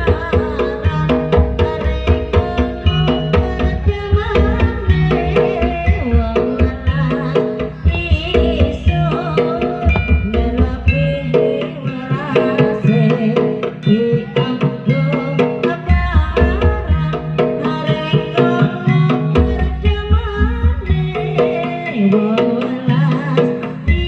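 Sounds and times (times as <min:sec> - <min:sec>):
wavering melody line: 0:00.0 - 0:12.1
hand drums beating: 0:00.0 - 0:24.0
ringing metallophone tones: 0:00.1 - 0:19.1.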